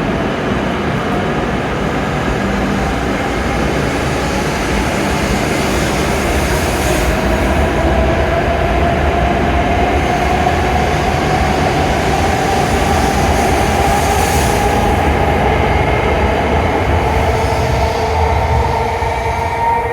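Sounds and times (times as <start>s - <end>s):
train running rumble: 0.0s - 19.9s.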